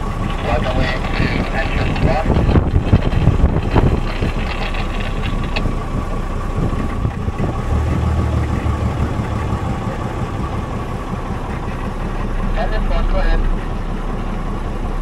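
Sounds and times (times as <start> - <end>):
bus engine low rumble: 0.0 - 15.0
thin steady whine: 0.0 - 15.0.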